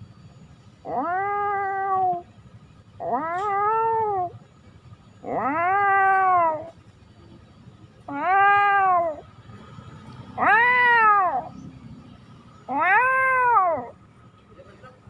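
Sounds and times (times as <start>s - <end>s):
cat meowing: 0.8s - 2.3s, 3.0s - 4.3s, 5.2s - 6.8s, 8.1s - 9.3s, 10.4s - 11.6s, 12.6s - 14.0s.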